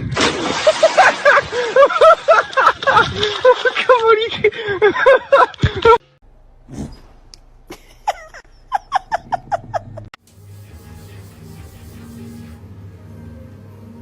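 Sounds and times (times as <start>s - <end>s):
person laughing: 0.6s - 6.1s, 7.7s - 10.2s
soft background music: 10.4s - 14.0s.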